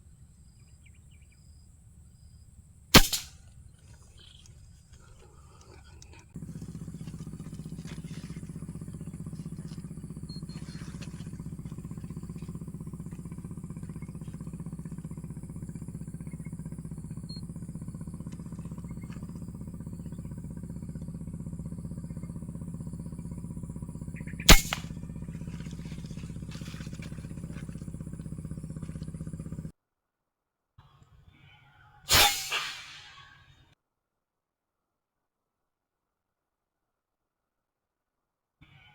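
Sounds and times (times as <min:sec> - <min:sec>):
low mechanical hum: 0:00.0 - 0:29.8
air rifle shot: 0:03.0 - 0:03.4, 0:24.5 - 0:25.0, 0:32.1 - 0:33.3.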